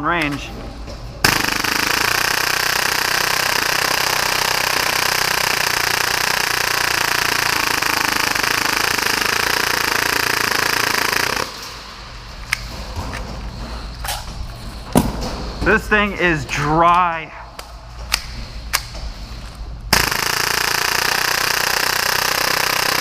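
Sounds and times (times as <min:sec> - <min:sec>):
airsoft pistol firing full-auto: 0:01.2 - 0:11.5, 0:19.9 - 0:23.0.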